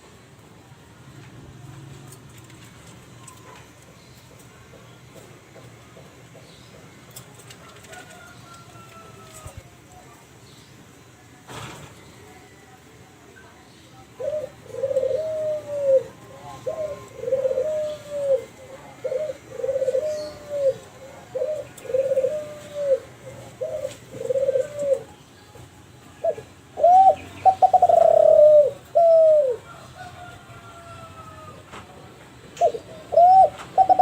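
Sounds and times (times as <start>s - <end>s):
dove cooing: 14.2s - 25.2s, 26.1s - 31.6s, 32.6s - 34.0s.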